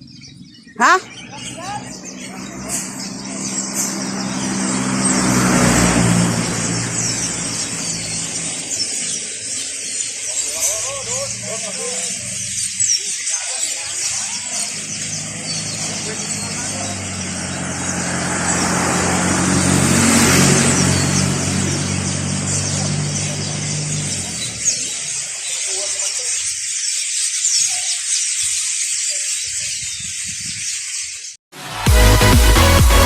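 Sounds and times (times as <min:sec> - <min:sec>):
flock of sparrows chirping: 0:00.0 - 0:31.4
vehicle engine running low: 0:01.0 - 0:09.5, 0:14.4 - 0:25.2.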